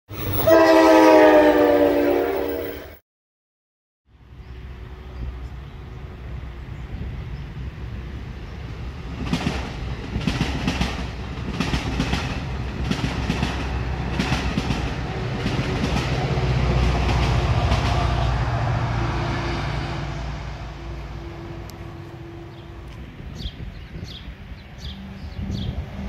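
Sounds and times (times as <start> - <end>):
locomotive deep rumble: 4.3 - 26.0
train wheels clacking: 9.1 - 18.4.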